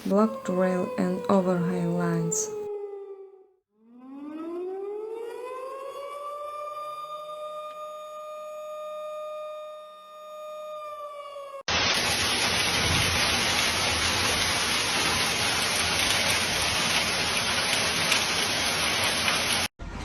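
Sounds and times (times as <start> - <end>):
heavy rain downpour: 11.7 - 19.7.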